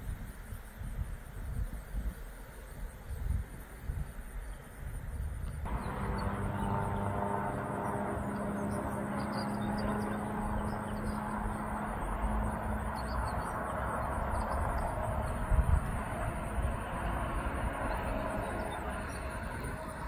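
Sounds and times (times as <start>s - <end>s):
distant locomotive engine hum: 0.0s - 20.0s
outdoor rumble: 5.5s - 20.0s.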